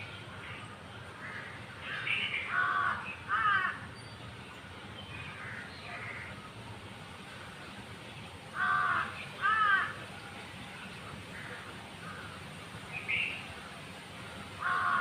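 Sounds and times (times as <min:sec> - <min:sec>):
crow cawing harshly: 0:02.5 - 0:03.8, 0:08.6 - 0:10.0, 0:14.6 - 0:15.0.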